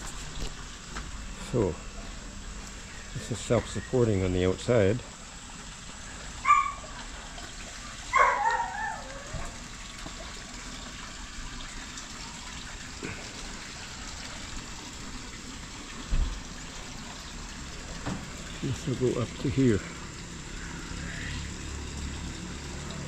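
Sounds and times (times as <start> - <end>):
water trickling and splashing: 0.0 - 23.0.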